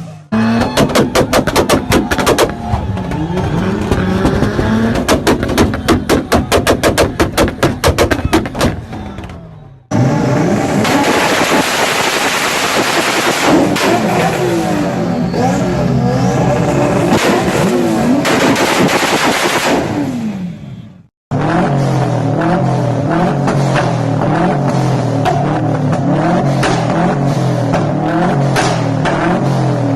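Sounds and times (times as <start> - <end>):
car engine revving: 0.0 - 9.0, 9.8 - 20.7, 21.3 - 29.9
exhaust pops and bangs: 0.6 - 9.4, 23.4 - 29.5.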